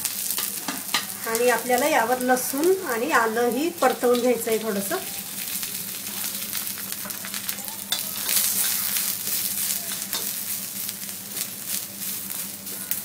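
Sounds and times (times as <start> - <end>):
garlic and ginger sizzling in oil: 0.0 - 13.0
spatula scraping a pan: 7.9 - 10.6.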